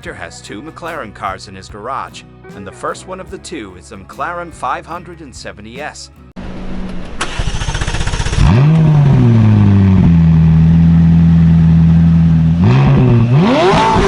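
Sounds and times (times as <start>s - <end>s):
car engine idling: 6.4s - 14.0s
car starter cranking: 6.8s - 9.7s.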